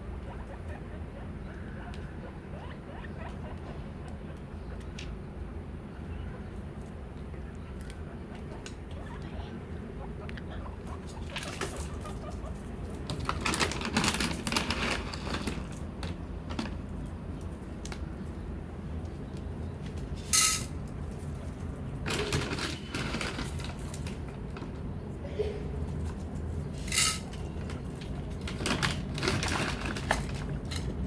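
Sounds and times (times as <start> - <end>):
guinea pigs wheeking: 0.0 - 16.0
rustling and clicking: 11.0 - 18.1, 25.8 - 31.0.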